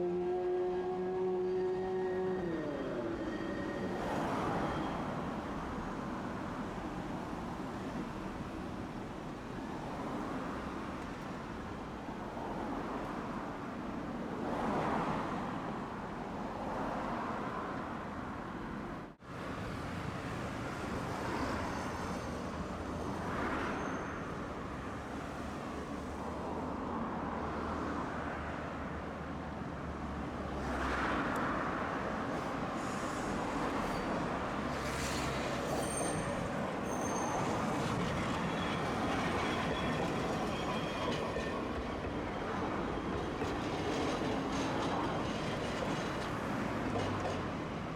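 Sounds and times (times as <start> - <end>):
vehicles passing on city street: 0.0 - 47.9
faint high-pitched squeals: 32.8 - 46.3.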